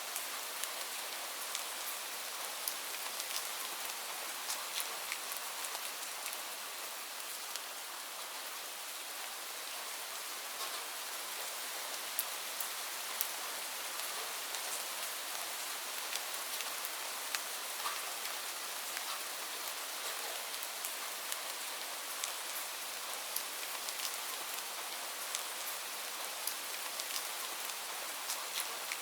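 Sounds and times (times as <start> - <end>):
steady rain hiss: 0.0 - 29.0
raindrops ticking on hard surface: 26.4 - 29.0.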